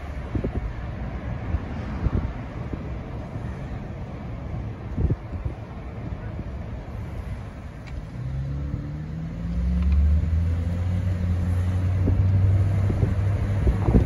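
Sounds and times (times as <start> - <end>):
car engine accelerating: 7.8 - 14.0.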